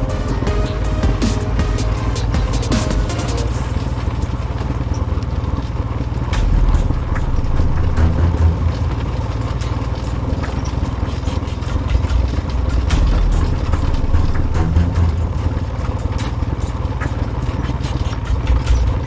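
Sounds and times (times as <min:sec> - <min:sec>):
engine running at low speed: 0:00.0 - 0:19.0
sharp clicks and rattles: 0:00.0 - 0:19.0.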